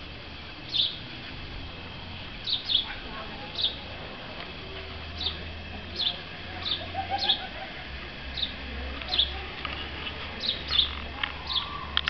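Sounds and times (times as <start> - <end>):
small bird chirping: 0.6 - 1.1, 2.4 - 3.8, 5.1 - 7.5, 8.3 - 12.0.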